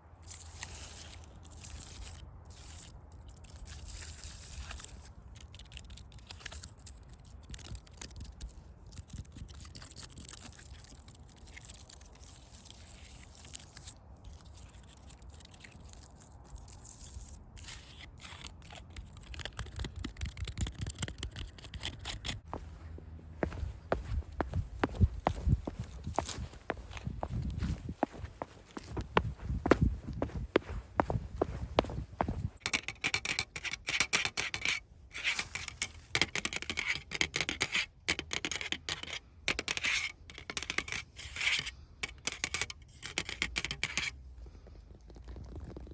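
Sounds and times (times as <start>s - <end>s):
crackly scratching and scraping: 0.2s - 41.7s, 42.4s - 45.9s
footsteps on forest path: 22.4s - 32.6s.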